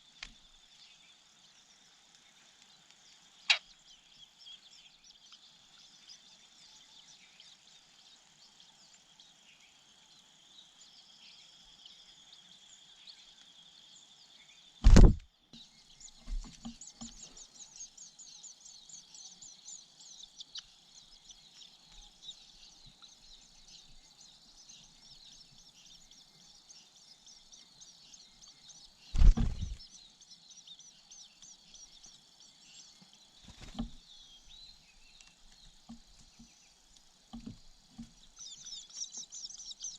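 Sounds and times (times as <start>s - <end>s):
bird chirps: 3.3s - 39.9s
knocks on microphone: 14.8s - 15.2s.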